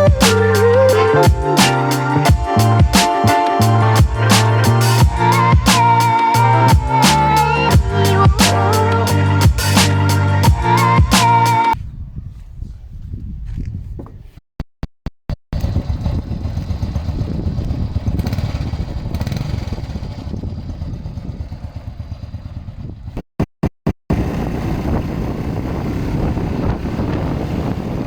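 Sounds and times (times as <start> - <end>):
motorcycle engine running: 15.6 - 23.2, 24.1 - 28.0.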